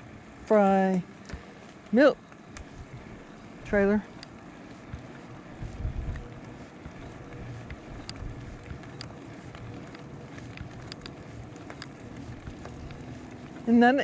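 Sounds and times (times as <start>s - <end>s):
bicycle tyres rolling: 1.1s - 14.0s
bike clicks and rattles: 3.9s - 14.0s
wind on microphone: 4.9s - 9.0s.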